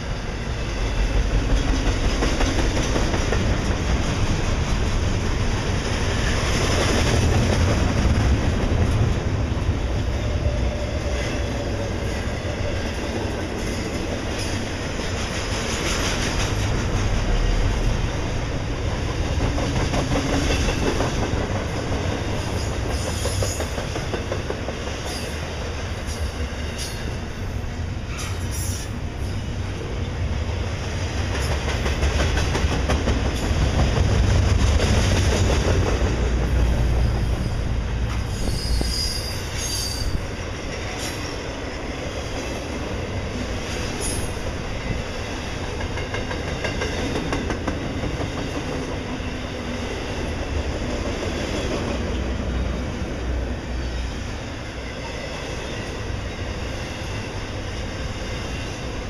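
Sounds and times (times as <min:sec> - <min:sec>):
train wheels rumbling on rails: 0:00.0 - 0:59.0
high wheel squeals: 0:37.4 - 0:40.2.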